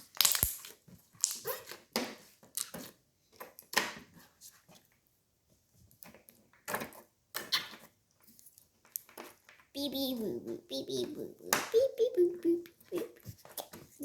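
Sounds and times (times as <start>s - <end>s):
slime bubbles popping: 0.0s - 1.5s.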